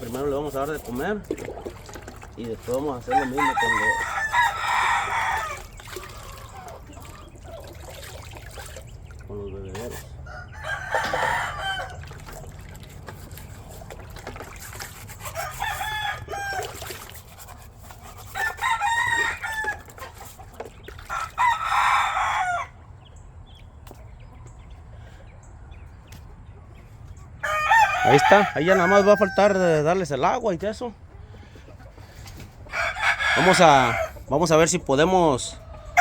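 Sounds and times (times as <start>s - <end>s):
roosters crowing: 2.7s - 7.8s, 9.7s - 12.9s, 15.1s - 17.2s, 18.0s - 20.4s, 21.0s - 23.0s, 27.4s - 30.2s, 31.4s - 36.0s.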